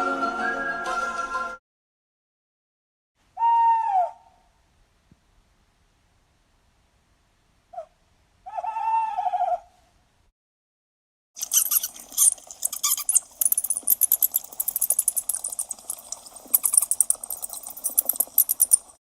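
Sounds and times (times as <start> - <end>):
mice squeaking: 11.4 - 19.0.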